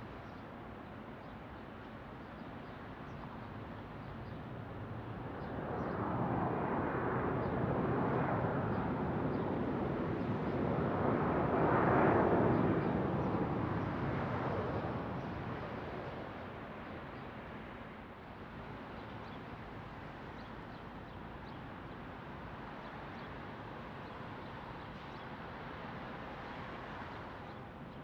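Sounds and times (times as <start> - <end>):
airliner engine passing: 5.2 - 16.4.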